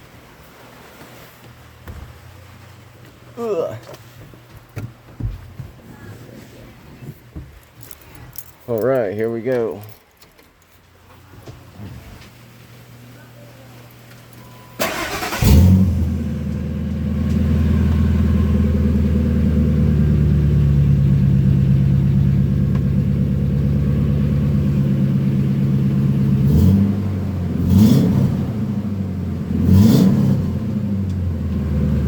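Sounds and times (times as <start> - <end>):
engine throttle blips: 14.4 - 32.0
truck engine idling: 14.8 - 27.8.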